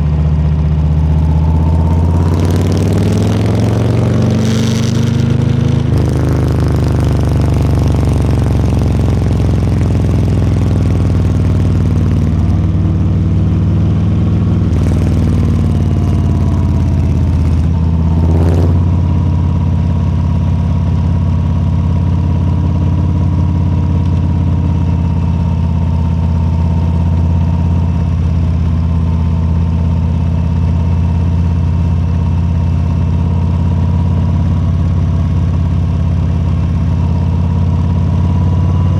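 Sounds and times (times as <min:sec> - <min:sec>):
motorcycle engine idling low: 0:04.9 - 0:28.5.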